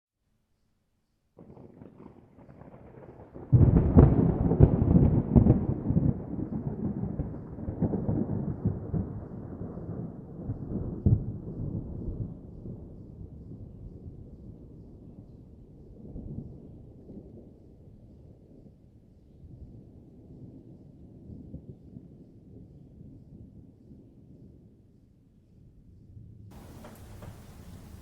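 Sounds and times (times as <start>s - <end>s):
thunder crackling and rumbling: 1.4s - 17.6s, 26.5s - 28.0s
faint rain patter: 1.4s - 23.5s, 26.5s - 28.0s.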